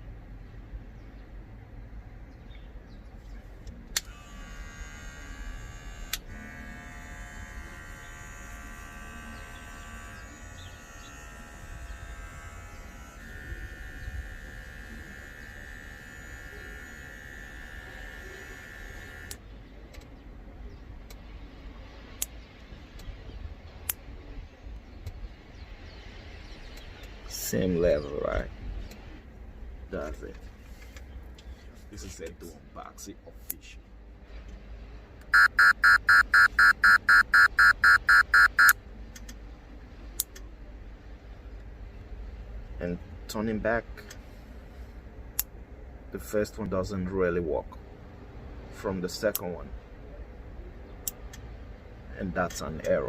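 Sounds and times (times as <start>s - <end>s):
hair clipper buzzing: 4.1s - 19.4s.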